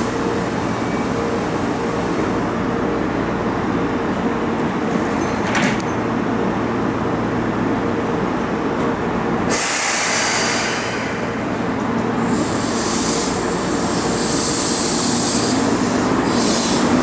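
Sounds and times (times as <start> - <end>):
air brakes hissing: 9.5 - 17.0
electric train humming: 10.2 - 17.0.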